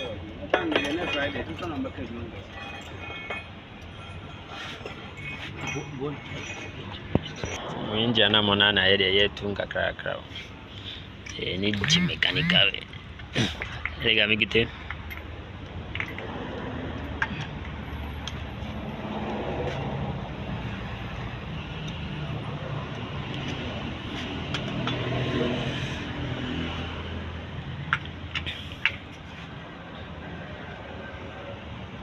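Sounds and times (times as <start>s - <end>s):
car engine humming: 0.0s - 26.0s.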